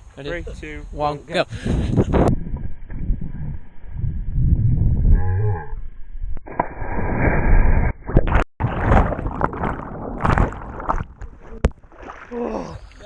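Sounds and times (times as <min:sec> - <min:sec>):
water splashing around swimmers: 0:08.3 - 0:13.0.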